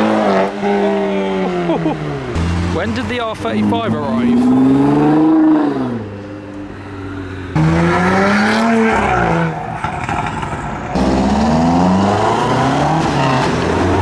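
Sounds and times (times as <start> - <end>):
car engine revving: 0.0 - 6.6, 7.5 - 14.0.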